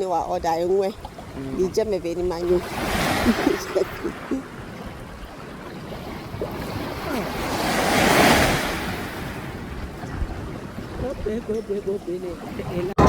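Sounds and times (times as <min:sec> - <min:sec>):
sea wave surging in: 0:02.5 - 0:10.9.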